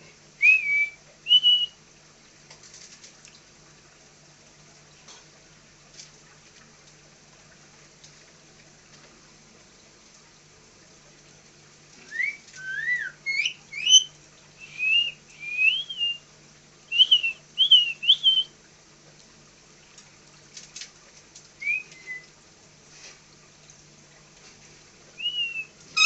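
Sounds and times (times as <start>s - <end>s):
parrot whistling: 0.4s - 1.8s, 12.1s - 16.2s, 16.9s - 18.5s, 21.6s - 22.2s, 25.2s - 26.0s.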